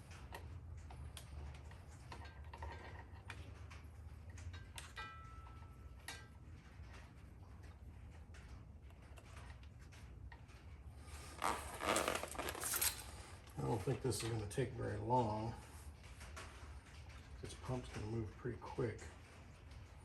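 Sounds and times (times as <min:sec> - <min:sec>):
crinkling rustle: 0:08.3 - 0:20.0.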